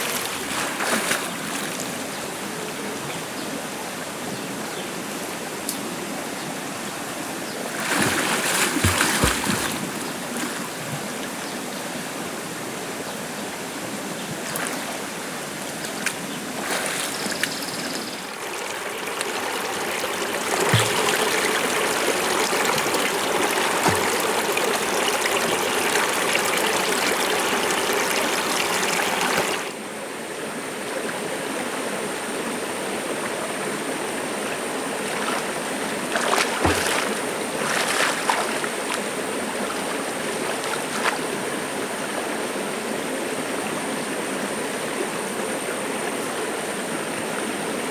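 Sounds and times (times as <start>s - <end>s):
water running: 7.7s - 11.0s, 15.7s - 29.7s, 35.1s - 39.0s.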